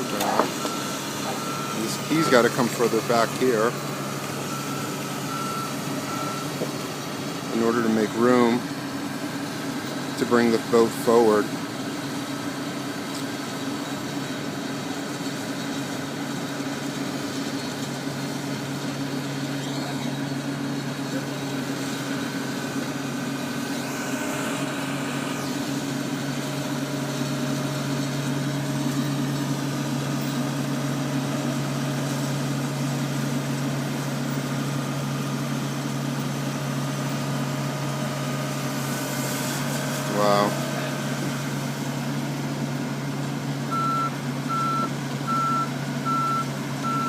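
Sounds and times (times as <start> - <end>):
crane engine droning: 0.0 - 47.0.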